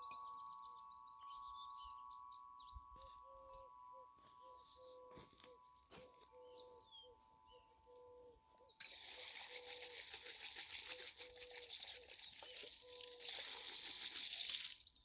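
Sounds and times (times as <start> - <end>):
low whistled note: 0.0 - 8.7
small birds chirping: 0.0 - 13.6
running water hiss: 8.8 - 15.0.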